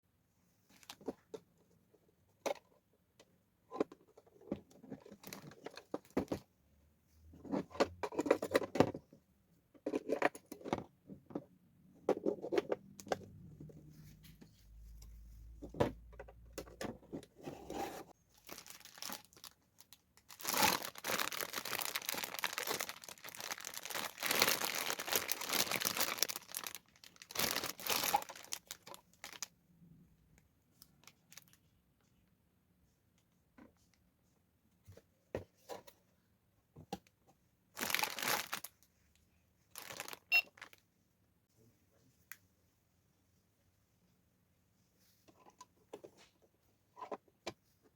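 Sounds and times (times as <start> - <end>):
packaging crinkling and tearing: 18.3 - 29.5, 37.8 - 38.8, 39.7 - 40.8.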